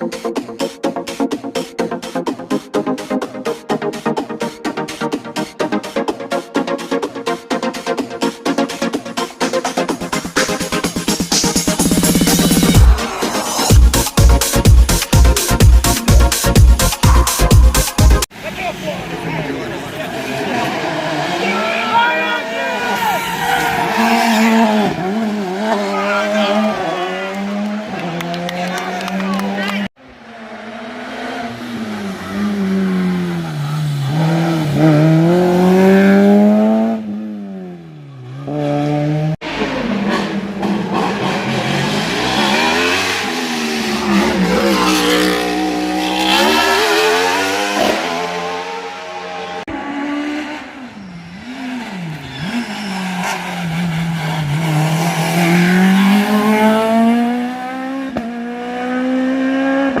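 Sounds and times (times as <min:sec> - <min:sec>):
racing car engine revving: 0:19.2 - 1:00.0.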